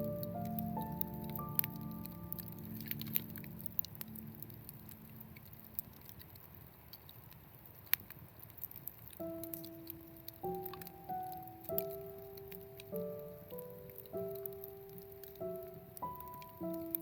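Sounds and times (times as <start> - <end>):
background music: 0.0 - 4.9
light ticks and pattering: 0.0 - 17.0
low steady hiss: 0.0 - 17.0.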